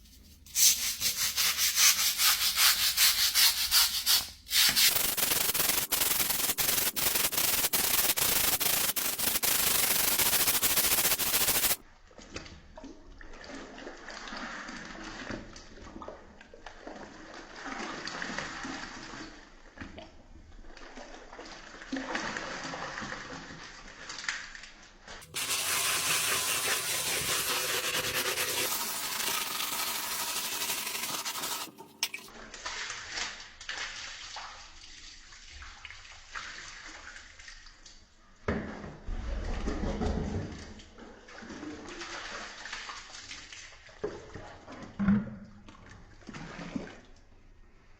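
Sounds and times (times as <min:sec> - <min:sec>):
fast scrubbing strokes: 0:00.5 - 0:11.8, 0:25.2 - 0:32.3
water sloshing and splashing: 0:45.7 - 0:47.2.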